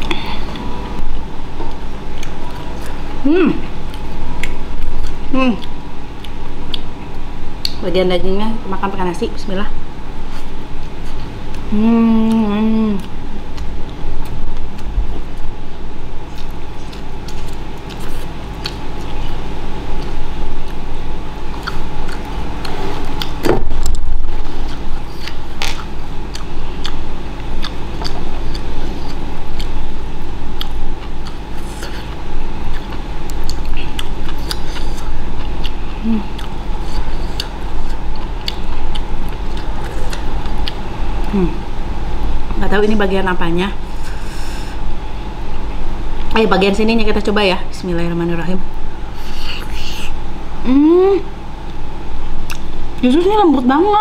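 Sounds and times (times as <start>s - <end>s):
steady low hum: 0.0s - 54.0s
person chewing: 1.6s - 3.1s, 3.7s - 6.9s, 10.3s - 15.5s, 16.2s - 41.5s, 49.1s - 50.2s, 52.4s - 52.7s.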